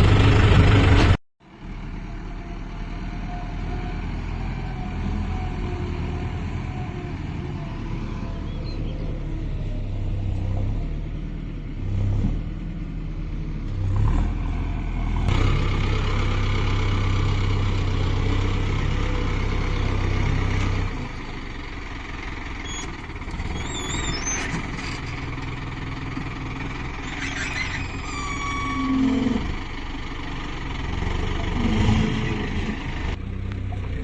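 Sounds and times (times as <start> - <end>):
tractor diesel engine revving: 0.0 - 2.0, 13.7 - 34.0.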